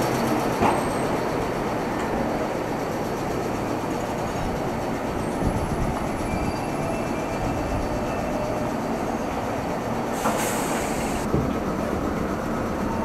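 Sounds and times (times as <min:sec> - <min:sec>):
electric train rumbling: 0:00.0 - 0:13.0
faint high squeals: 0:05.2 - 0:09.6.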